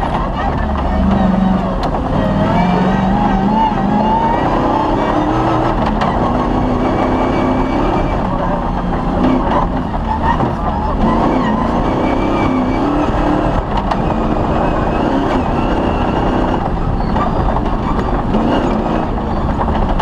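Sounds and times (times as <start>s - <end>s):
dense rumble: 0.0s - 20.0s
rally car engine running hard: 0.0s - 20.0s.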